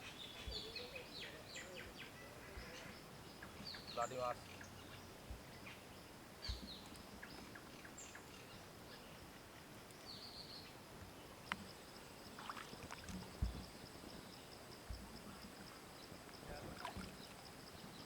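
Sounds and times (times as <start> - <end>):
soft low thumps: 13.3 - 13.8.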